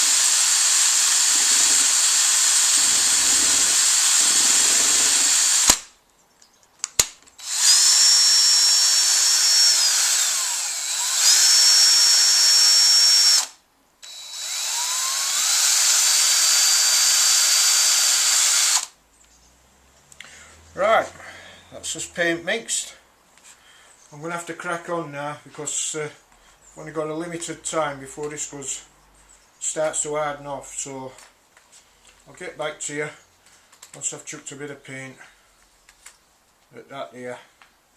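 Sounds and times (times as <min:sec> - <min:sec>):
electric drill stirring paint: 0:00.0 - 0:05.9, 0:07.4 - 0:18.9.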